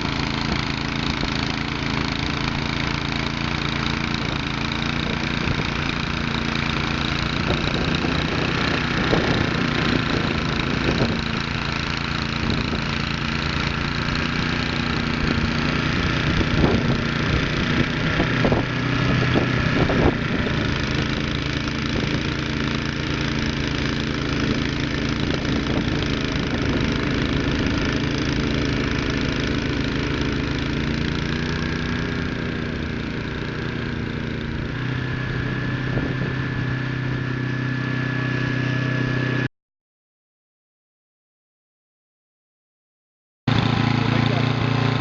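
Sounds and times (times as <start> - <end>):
small engine running: 0.0 - 39.5, 43.5 - 45.0.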